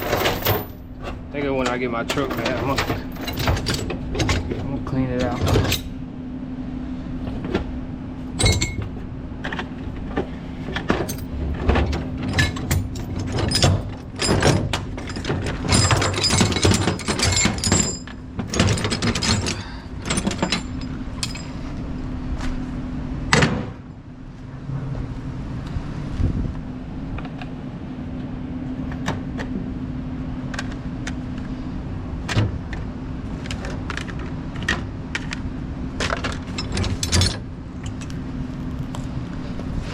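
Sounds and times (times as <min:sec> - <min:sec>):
metal chains clanking: 0:00.0 - 0:05.9, 0:08.4 - 0:09.0, 0:11.0 - 0:21.6, 0:36.5 - 0:37.4
steady hum: 0:00.0 - 0:39.9.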